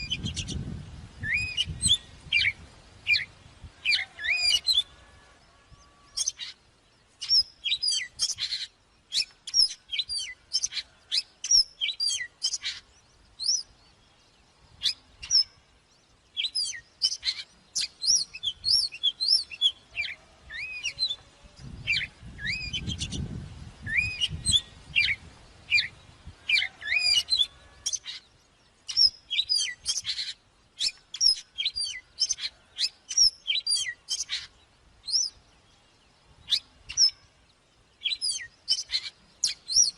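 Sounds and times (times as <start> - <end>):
bird singing whistled phrases: 1.2 - 3.3, 3.9 - 4.9, 21.8 - 23.2, 23.8 - 25.9, 26.6 - 28.2, 28.9 - 34.5, 38.0 - 39.9.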